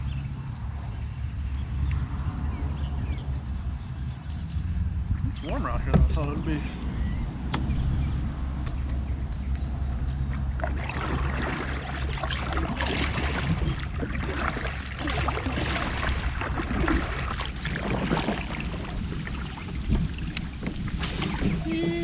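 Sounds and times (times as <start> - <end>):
steady low hum: 0.0 - 22.0
water splashing and trickling: 4.7 - 6.6, 9.6 - 22.0.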